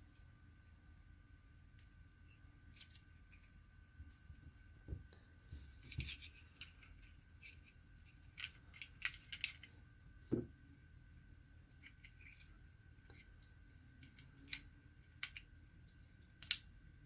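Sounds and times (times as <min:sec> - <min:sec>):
small metal parts clinking: 0:05.8 - 0:09.8.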